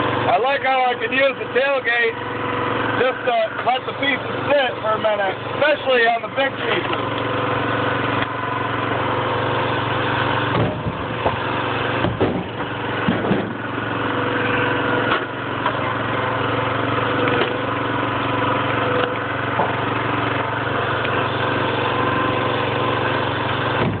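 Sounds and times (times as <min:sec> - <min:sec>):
log splitter engine running: 0:00.0 - 0:24.0
wood cracking and splitting: 0:10.0 - 0:14.4, 0:16.8 - 0:24.0.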